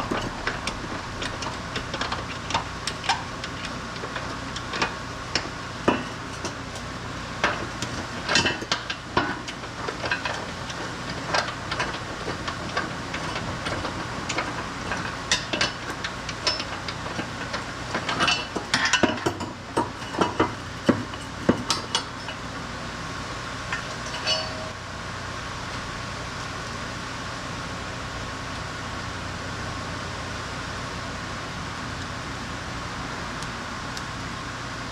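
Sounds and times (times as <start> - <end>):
workshop hum: 0.0 - 34.9
metal tools clinking and knocking: 23.7 - 24.8.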